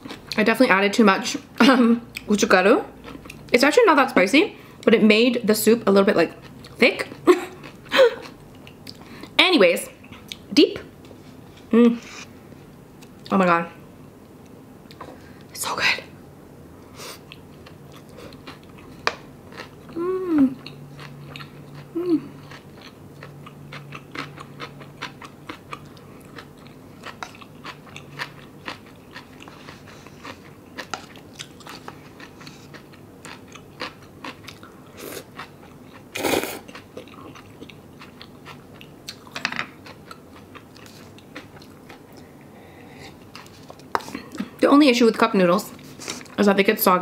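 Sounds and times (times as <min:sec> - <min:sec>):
person humming: 0:19.9 - 0:20.6, 0:21.9 - 0:22.4
chewing noodles with wet clicks: 0:20.6 - 0:34.7, 0:36.6 - 0:42.0.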